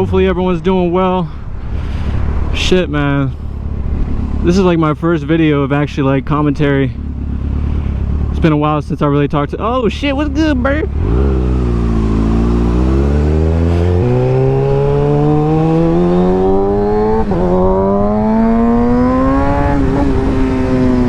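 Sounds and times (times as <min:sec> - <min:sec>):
motorcycle engine accelerating: 0:03.4 - 0:21.0
wind rush on microphone: 0:10.9 - 0:21.0.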